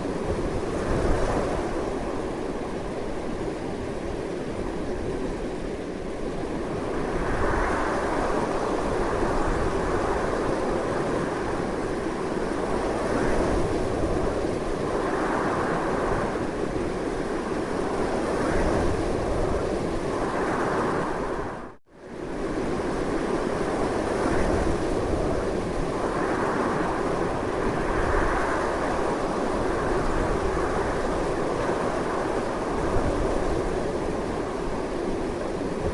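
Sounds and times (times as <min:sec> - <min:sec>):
strong wind blowing in gusts: 0:00.0 - 0:35.9.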